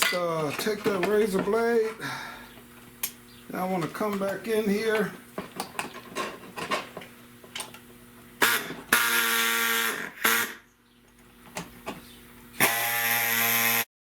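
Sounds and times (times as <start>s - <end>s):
small power tool running: 8.4s - 10.6s, 12.6s - 13.9s.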